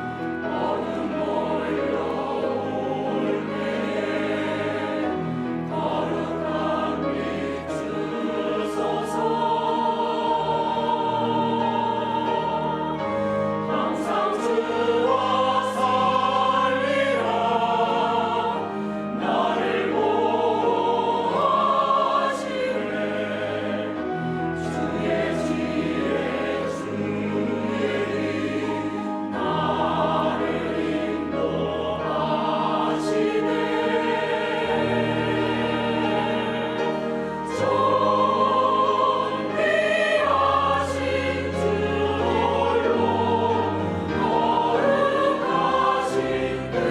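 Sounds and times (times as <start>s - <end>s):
choir singing a hymn: 0.0s - 46.9s
sustained low accompaniment notes: 0.0s - 46.9s.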